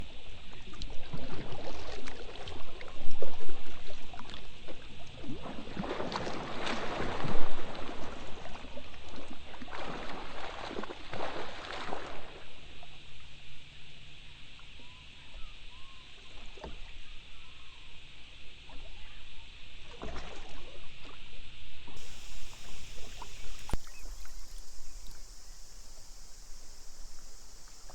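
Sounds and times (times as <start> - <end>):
water splashing around kayak: 22.0 - 27.9.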